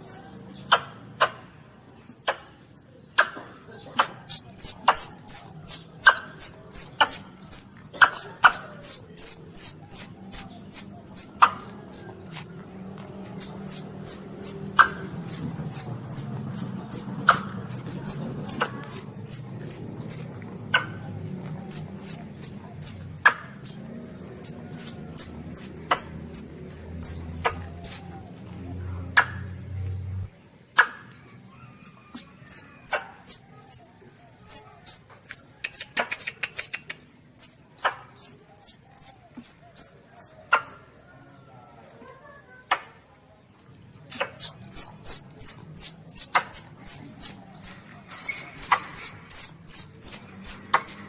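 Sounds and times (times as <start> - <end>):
civet high-pitched squeaks: 0.0 - 0.8, 4.0 - 28.2, 31.6 - 40.8, 44.1 - 51.0
sharp clicks: 4.0 - 20.9, 31.8 - 38.3, 44.1 - 51.0.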